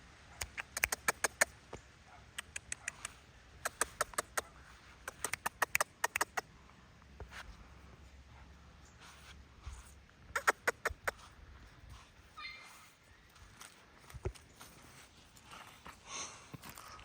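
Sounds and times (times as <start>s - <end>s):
footsteps crunching on dry ground: 11.1s - 17.0s.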